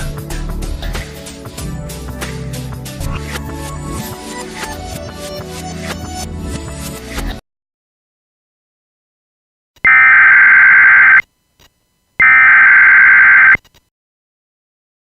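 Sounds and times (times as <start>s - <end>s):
buzzing data tone warble: 9.9s - 11.2s, 12.2s - 13.6s.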